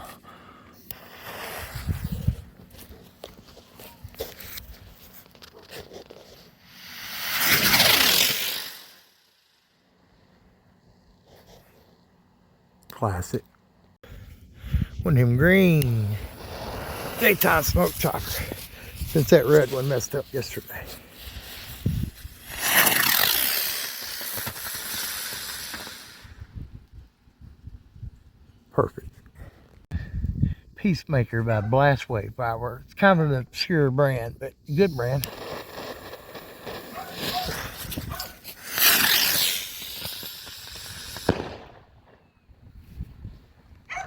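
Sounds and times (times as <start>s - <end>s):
firework igniting with hiss: 0.9s - 2.9s, 3.8s - 9.8s, 15.7s - 26.6s, 34.9s - 42.3s
spinning firework whine: 0.9s - 10.4s, 15.4s - 26.6s, 34.9s - 42.4s
firework sharp pop: 35.2s - 42.3s.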